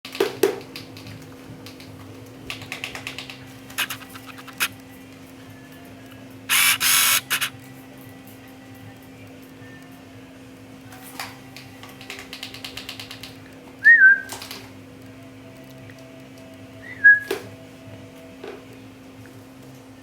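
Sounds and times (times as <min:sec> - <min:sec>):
rattle of rapid ticks: 0:02.5 - 0:04.8, 0:06.5 - 0:07.5, 0:12.0 - 0:13.5
sharp clicks: 0:03.7 - 0:04.7, 0:06.5 - 0:07.5
parrot-like whistles: 0:03.8 - 0:04.7, 0:06.5 - 0:07.5, 0:13.8 - 0:14.3, 0:16.8 - 0:17.3.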